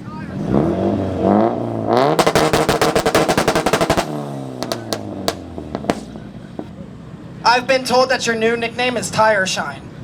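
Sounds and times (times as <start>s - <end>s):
car engine revving: 0.4s - 6.3s
exhaust bangs and pops: 2.0s - 6.8s.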